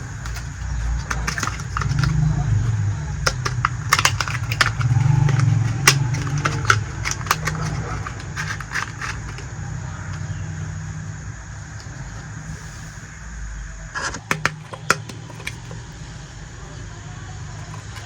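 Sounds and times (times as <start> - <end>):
plastic toy pieces clicking: 0.0 - 10.3, 14.0 - 15.9, 17.4 - 18.0
steady low rumble: 0.0 - 18.0.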